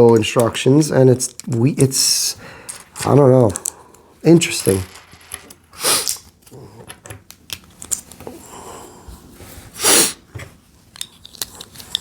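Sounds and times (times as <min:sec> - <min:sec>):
plastic pieces clicking: 0:02.7 - 0:03.8.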